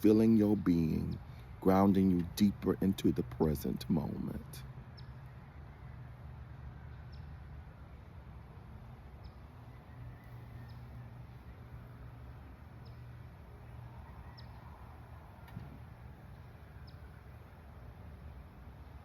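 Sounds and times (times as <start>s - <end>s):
bird chirping: 0.0s - 6.2s, 9.2s - 15.0s, 16.3s - 17.2s.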